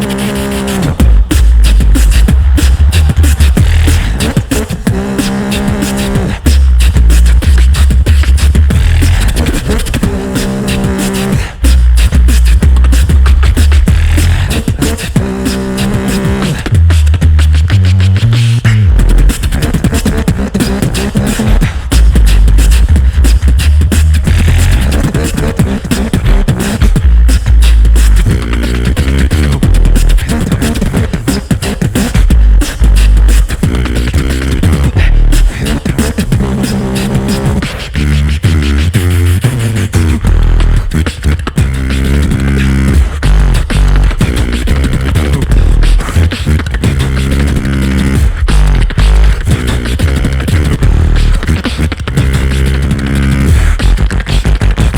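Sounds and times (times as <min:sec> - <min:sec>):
beatboxing over speakers: 0:00.0 - 0:54.9
deep sustained bass: 0:00.9 - 0:05.7, 0:06.4 - 0:09.6, 0:11.7 - 0:14.6, 0:21.7 - 0:25.0.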